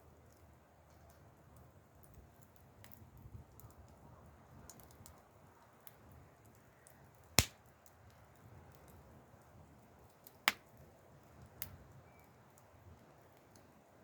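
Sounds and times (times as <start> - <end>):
wood fire crackling: 0.3 - 14.0
loud sharp pop of fire: 7.4 - 7.6.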